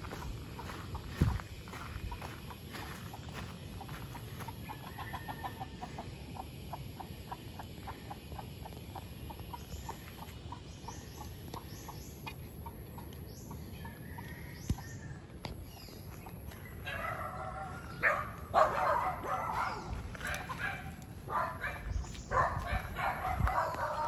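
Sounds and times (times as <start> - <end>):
bird clucking: 0.0 - 14.9, 16.2 - 24.0
small birds chirping: 0.0 - 24.0.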